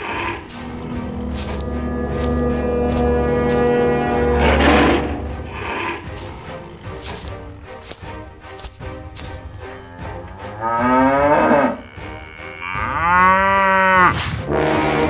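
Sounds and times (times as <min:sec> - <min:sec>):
background music: 0:00.0 - 0:15.0
cattle mooing: 0:09.7 - 0:15.0.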